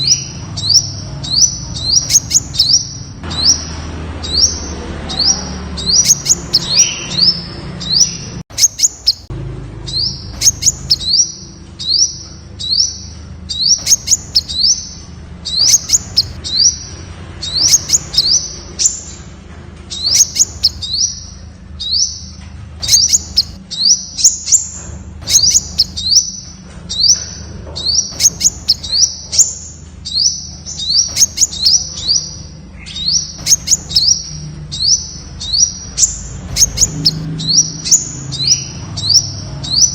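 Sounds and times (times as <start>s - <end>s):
sunbird calling: 0.0s - 9.3s, 9.9s - 19.3s, 19.9s - 39.9s
sharp ticks: 10.3s - 11.1s, 22.8s - 23.6s.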